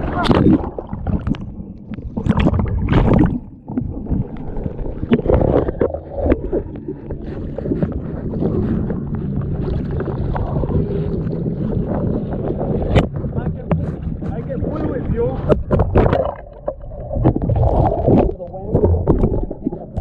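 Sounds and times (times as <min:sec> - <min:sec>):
water sloshing and splashing: 0:00.0 - 0:20.0
wind buffeting microphone: 0:05.1 - 0:20.0.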